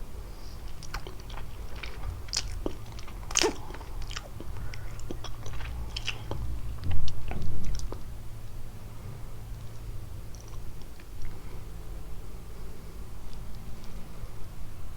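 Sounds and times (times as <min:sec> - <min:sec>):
chewing pastry with crunches: 0:00.0 - 0:08.2, 0:09.5 - 0:11.7.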